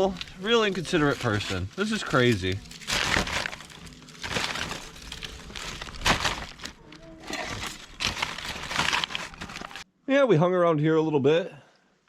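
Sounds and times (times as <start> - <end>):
litter crinkling and crunching: 0.0 - 9.9.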